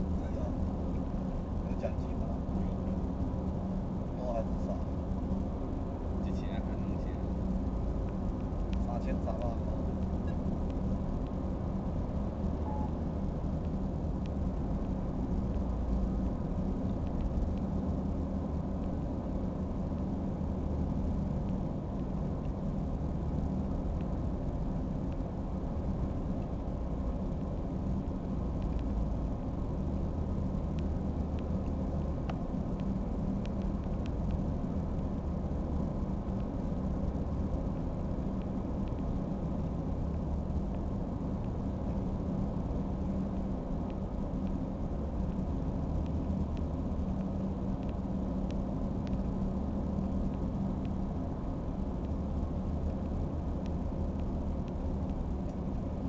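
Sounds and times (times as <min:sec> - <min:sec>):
large engine rumbling: 0:00.0 - 0:56.0
faint ticks: 0:06.2 - 0:56.0.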